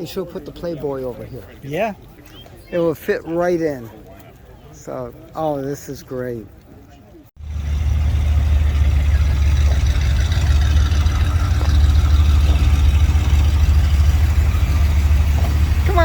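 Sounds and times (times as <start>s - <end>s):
car engine idling: 7.4s - 16.0s.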